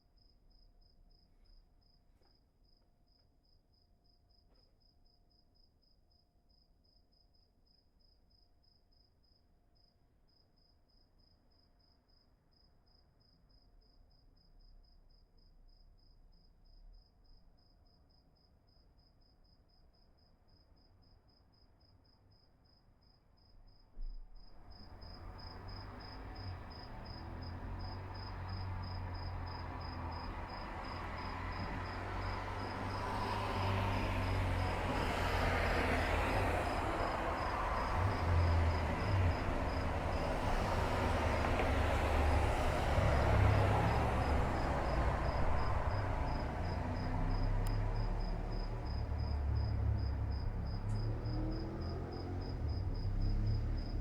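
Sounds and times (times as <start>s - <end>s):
rushing noise with low rumble: 36.4s - 51.2s.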